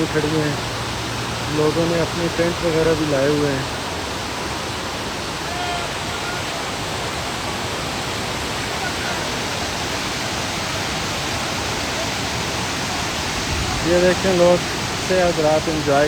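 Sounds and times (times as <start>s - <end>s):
fast mountain river rushing: 0.0s - 16.0s
faint distant voices: 5.2s - 16.0s.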